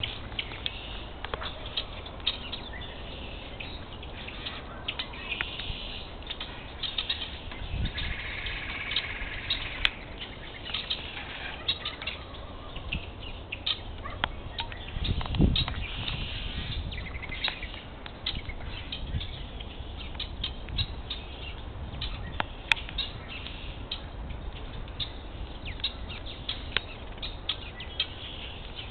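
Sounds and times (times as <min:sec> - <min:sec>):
rippling bird trill: 0:00.0 - 0:13.9
small birds chirping: 0:00.0 - 0:28.9.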